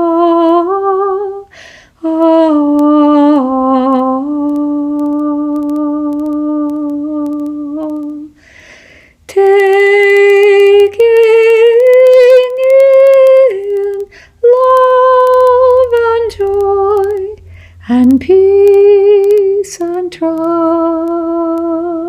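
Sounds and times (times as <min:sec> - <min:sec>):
woman singing long held notes: 0:00.0 - 0:08.4, 0:09.3 - 0:22.0
breath: 0:01.5 - 0:02.0, 0:08.4 - 0:09.2, 0:14.1 - 0:14.4, 0:17.5 - 0:17.8.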